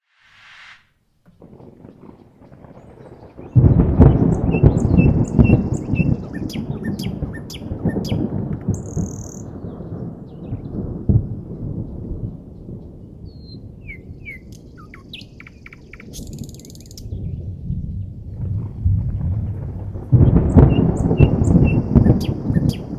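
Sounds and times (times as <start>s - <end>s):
birds chirping: 1.3s - 10.9s, 13.4s - 17.4s, 19.1s - 22.9s
thunder rumbling: 1.3s - 22.9s.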